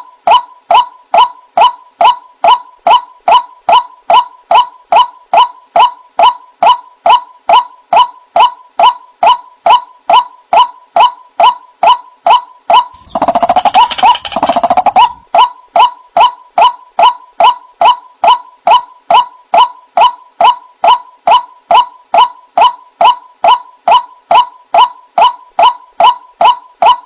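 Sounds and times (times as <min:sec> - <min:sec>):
waterhen calling: 0:13.0 - 0:15.2.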